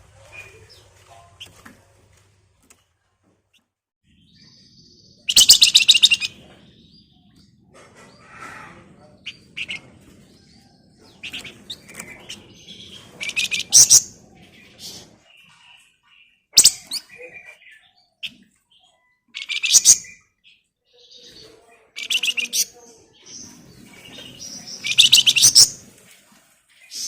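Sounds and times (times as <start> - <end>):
songbird chattering song: 4.1 - 7.7, 9.0 - 25.8.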